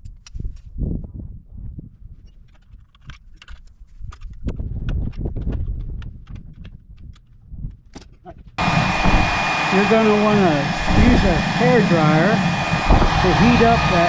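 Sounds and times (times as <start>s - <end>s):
low rumble: 8.6s - 14.0s.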